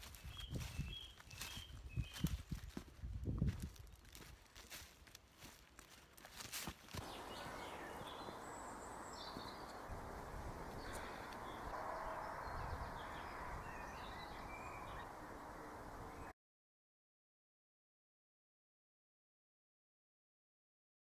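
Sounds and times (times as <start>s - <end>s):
bird calls: 7.0s - 16.3s
steady rushing noise: 7.0s - 16.3s.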